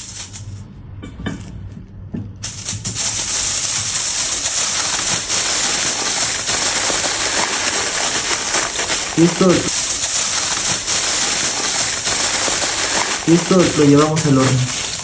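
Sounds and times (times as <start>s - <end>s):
aluminium foil crinkling: 0.0s - 0.6s, 2.4s - 15.0s.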